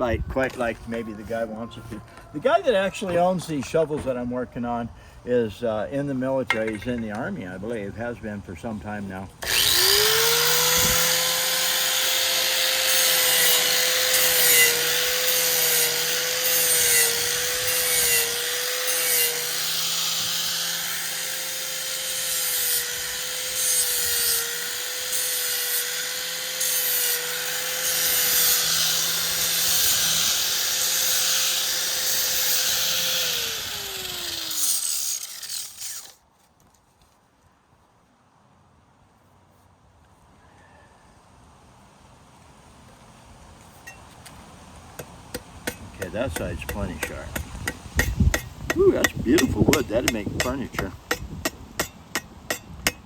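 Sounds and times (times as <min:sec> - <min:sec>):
grinding rasp on steel blade: 0:09.4 - 0:36.2, 0:45.3 - 0:53.0
power tool motor running: 0:09.4 - 0:36.2.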